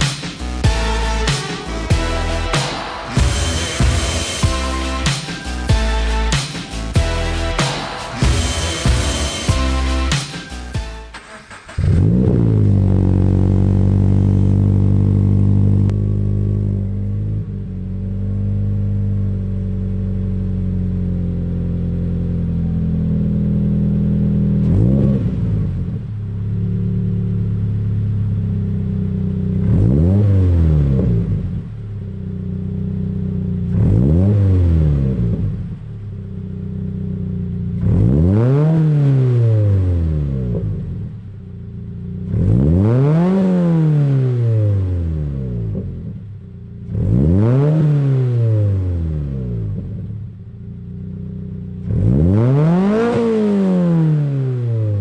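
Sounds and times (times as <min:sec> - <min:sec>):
car engine idling: 0:00.0 - 0:30.0, 0:31.2 - 0:34.1, 0:35.0 - 0:38.2, 0:40.6 - 0:42.6, 0:45.6 - 0:47.1, 0:49.5 - 0:52.2
car engine revving: 0:00.0 - 0:55.0.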